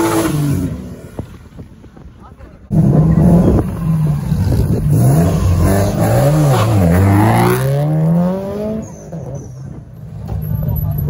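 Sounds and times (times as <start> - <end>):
car engine revving: 2.7 - 9.5.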